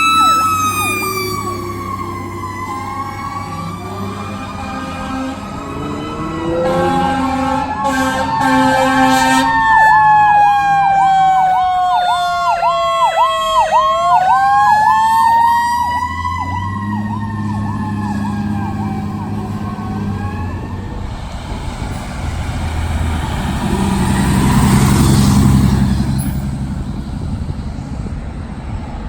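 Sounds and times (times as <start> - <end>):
electronic siren yelping: 0.0 - 4.8, 5.9 - 21.0
wailing siren: 0.0 - 27.4
horn blast: 3.8 - 10.1
low diesel engine rumble: 13.8 - 29.0.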